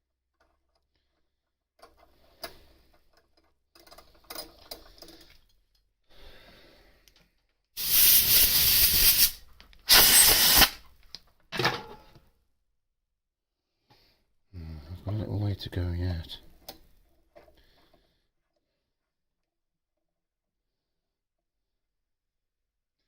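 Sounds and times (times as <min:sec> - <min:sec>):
spray jet hissing: 0:07.8 - 0:10.8.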